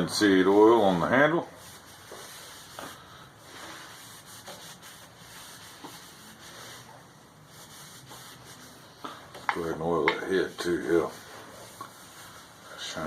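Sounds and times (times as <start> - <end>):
hand rubbing wooden handle: 0.5 - 13.0.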